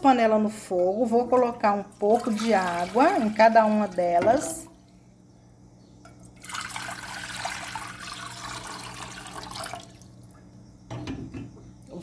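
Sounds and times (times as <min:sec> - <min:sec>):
water pouring into a pot: 0:01.5 - 0:04.8, 0:06.3 - 0:10.2.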